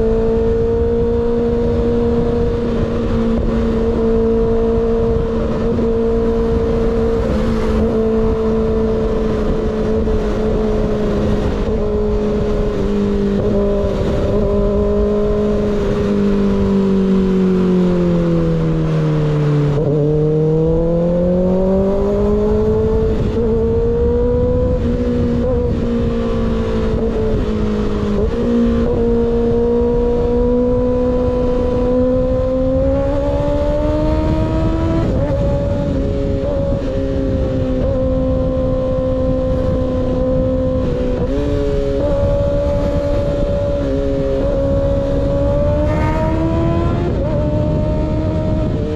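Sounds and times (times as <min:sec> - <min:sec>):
motorcycle exhaust under way: 0:00.0 - 0:48.9
wind rushing over microphone: 0:00.0 - 0:48.9.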